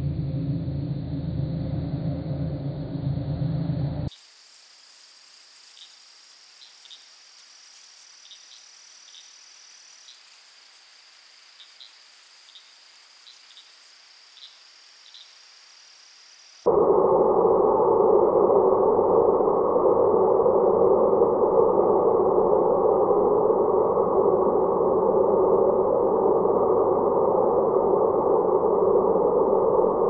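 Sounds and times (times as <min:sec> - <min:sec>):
loud low drone: 0:00.0 - 0:04.1
high-pitched insect chorus: 0:04.1 - 0:16.7
insect chirps: 0:04.1 - 0:16.7.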